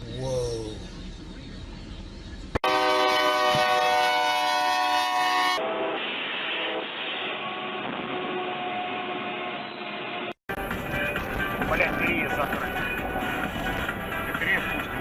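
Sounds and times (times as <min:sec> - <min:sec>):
train horn blast: 0:02.6 - 0:10.4
train rushing rumble: 0:05.5 - 0:15.0.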